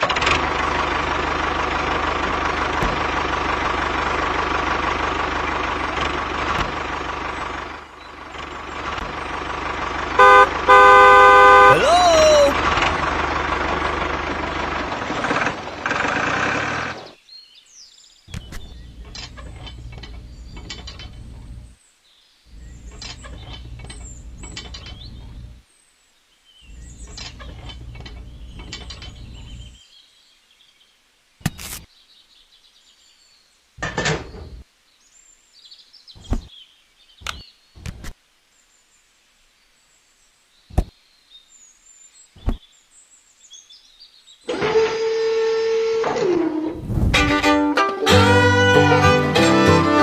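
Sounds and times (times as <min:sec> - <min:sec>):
small geared motor rattling: 0:00.0 - 0:11.2, 0:12.5 - 0:17.2, 0:44.5 - 0:46.7.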